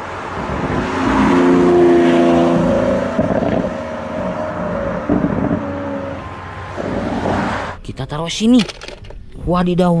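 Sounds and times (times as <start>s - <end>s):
car engine running: 1.6s - 7.4s.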